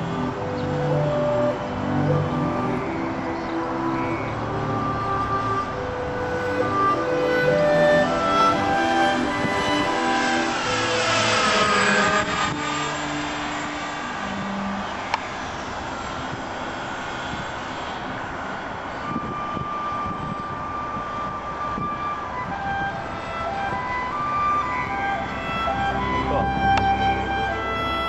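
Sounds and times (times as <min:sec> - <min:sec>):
model airplane motors droning: 0:00.0 - 0:28.0.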